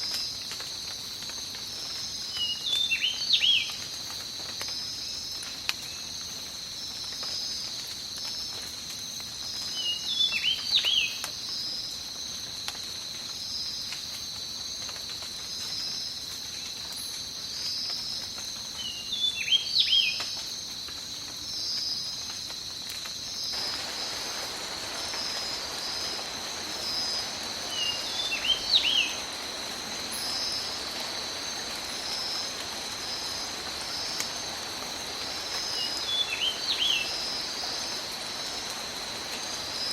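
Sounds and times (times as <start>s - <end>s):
insects trilling: 0.0s - 39.9s
rain hiss: 0.0s - 39.9s.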